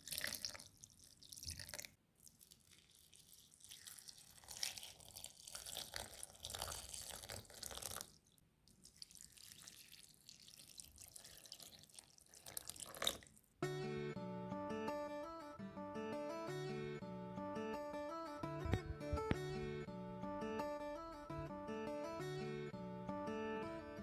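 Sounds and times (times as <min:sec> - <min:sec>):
water dripping and splashing: 0:00.0 - 0:13.4.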